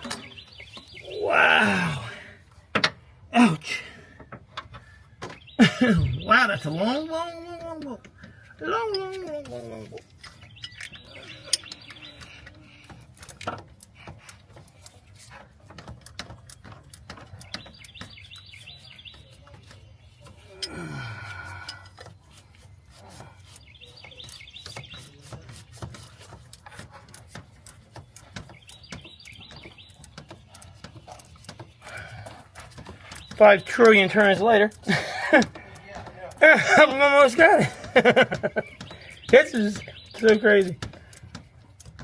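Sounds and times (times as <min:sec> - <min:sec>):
birds chirping: 0:00.0 - 0:42.0
person groaning: 0:01.0 - 0:02.3, 0:20.7 - 0:21.6.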